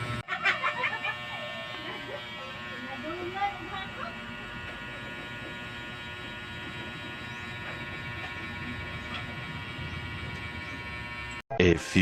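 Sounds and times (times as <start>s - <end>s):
small electric motor humming: 0.0s - 12.0s.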